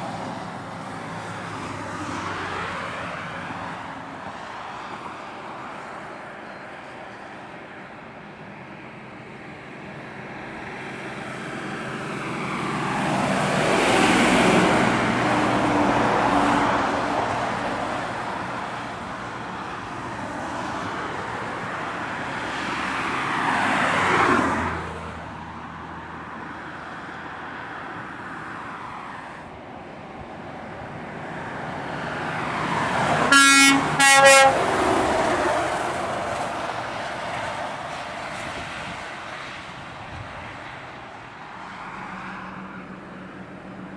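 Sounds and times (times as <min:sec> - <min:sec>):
heavy trucks passing: 0:00.0 - 0:43.9
truck horn toots: 0:33.2 - 0:35.0.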